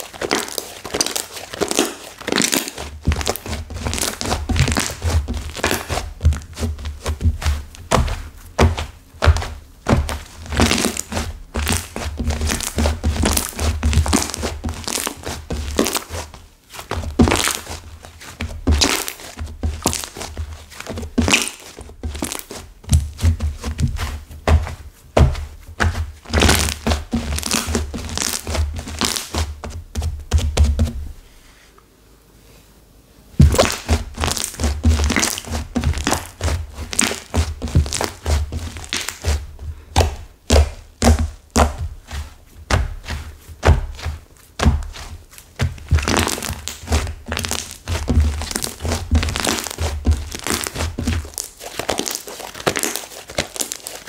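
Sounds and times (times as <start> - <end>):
slime squeezed by hand crackling: 0.0 - 6.0, 27.4 - 29.3, 33.4 - 39.4, 45.4 - 54.0.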